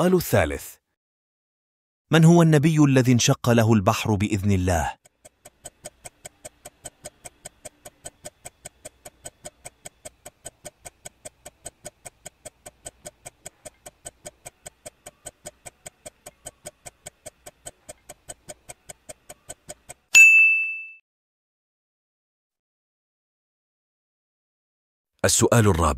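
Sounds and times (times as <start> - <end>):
clock-like ticking: 4.2 - 20.1.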